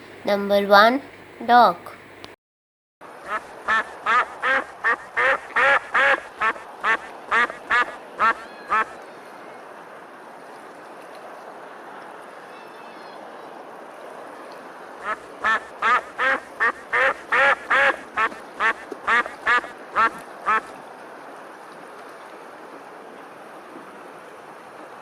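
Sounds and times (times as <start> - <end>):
steady background hiss: 0.0 - 2.3, 3.0 - 25.0
duck quacking: 3.3 - 8.9, 15.0 - 20.7.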